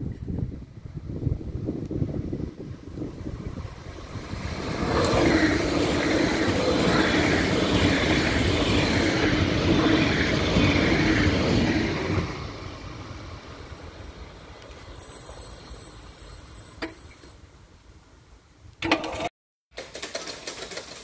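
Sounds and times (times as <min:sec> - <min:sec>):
high-speed train passing: 0:00.7 - 0:17.3.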